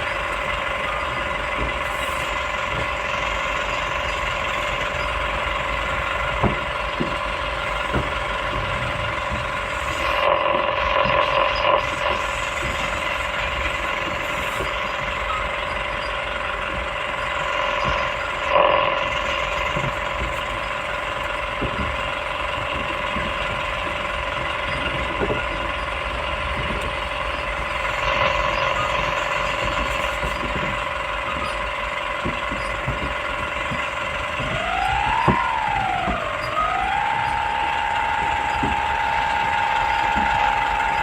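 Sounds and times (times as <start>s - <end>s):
excavator whine and rumble: 0.0s - 41.0s
knocks: 21.4s - 41.0s.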